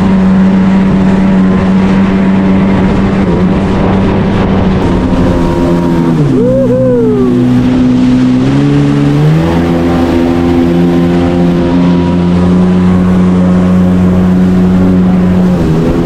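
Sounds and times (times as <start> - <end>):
jet ski engine running: 0.0 - 16.0
second higher engine tone: 4.8 - 15.4.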